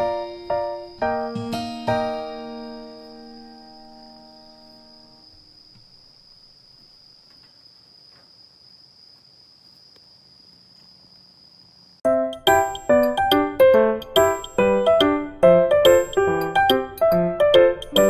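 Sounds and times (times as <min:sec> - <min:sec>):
insect drone: 0:00.0 - 0:18.0
chiming bell-like music: 0:12.1 - 0:18.0.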